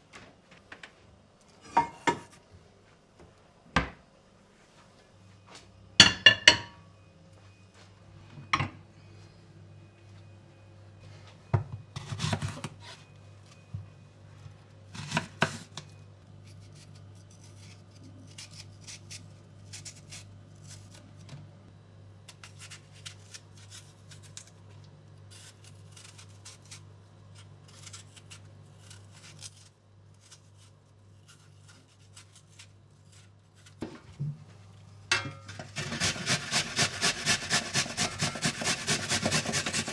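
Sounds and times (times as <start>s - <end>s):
kitchen knocks and clatters: 1.6s - 2.4s, 6.0s - 6.8s, 35.1s - 36.6s.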